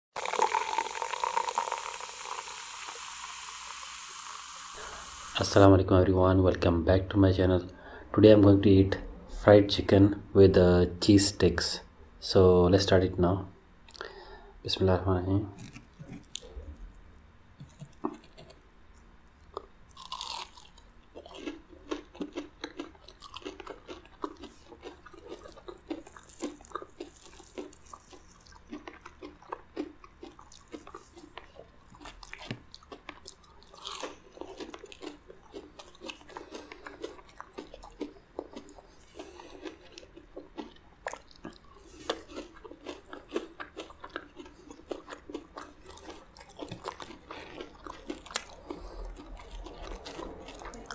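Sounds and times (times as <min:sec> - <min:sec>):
crunchy food being chewed: 0:15.5 - 0:17.0, 0:17.6 - 0:50.9.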